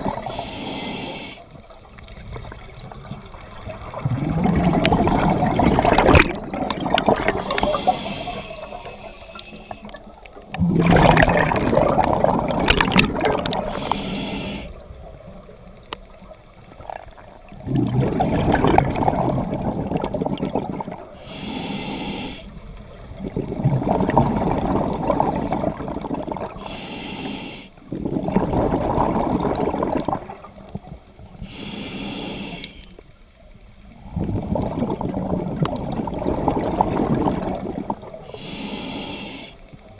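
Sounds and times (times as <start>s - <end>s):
exhaled bubbles underwater: 0.0s - 26.8s, 27.8s - 31.6s, 33.8s - 39.9s
regulator inhalation hiss: 0.2s - 1.6s, 7.4s - 10.0s, 13.6s - 14.8s, 21.2s - 22.6s, 26.6s - 27.8s, 31.4s - 33.0s, 38.3s - 39.7s.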